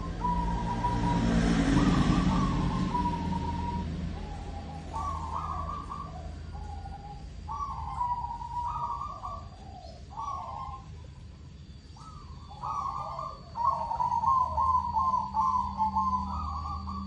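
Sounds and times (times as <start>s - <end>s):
dove cooing: 0.0s - 11.2s, 12.0s - 17.0s.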